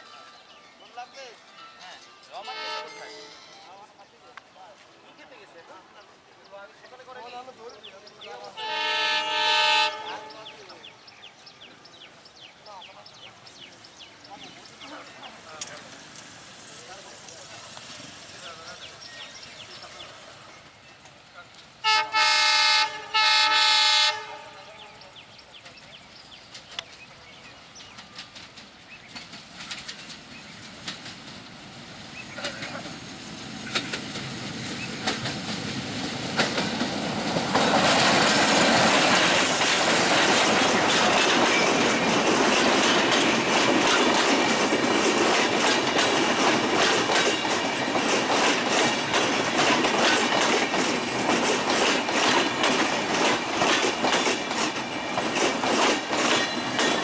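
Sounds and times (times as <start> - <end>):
diesel locomotive passing: 0.0 - 4.2, 5.0 - 57.0
wheels clattering over rail joints: 25.6 - 31.5, 32.2 - 57.0.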